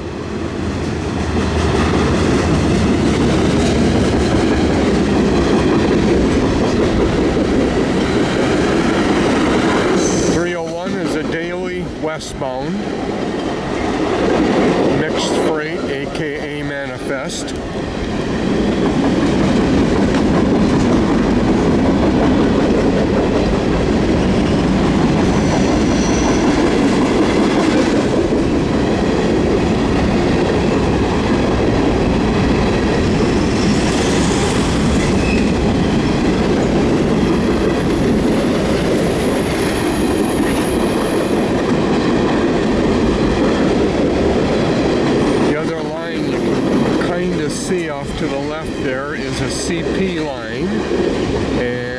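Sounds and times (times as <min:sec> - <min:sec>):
freight train rumbling past: 0:00.0 - 0:51.9
faint high squeal: 0:25.3 - 0:26.5.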